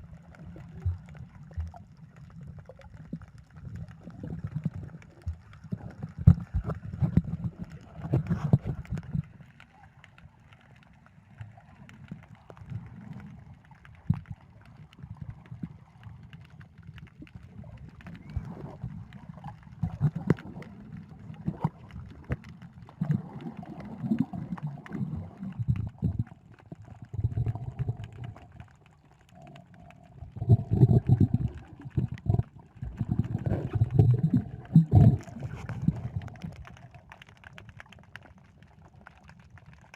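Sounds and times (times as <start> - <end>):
muffled underwater gurgling: 16.6 - 37.2.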